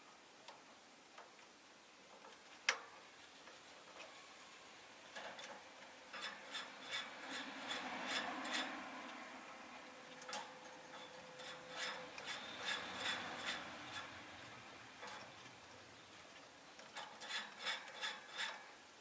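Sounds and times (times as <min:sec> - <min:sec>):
beak and claws scratching: 0:06.1 - 0:09.0, 0:10.2 - 0:15.5, 0:16.2 - 0:18.8.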